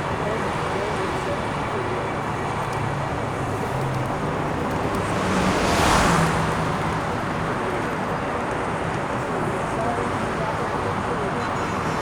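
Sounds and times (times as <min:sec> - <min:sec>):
city road traffic: 0:00.0 - 0:12.0
vehicle passing by: 0:03.2 - 0:07.6.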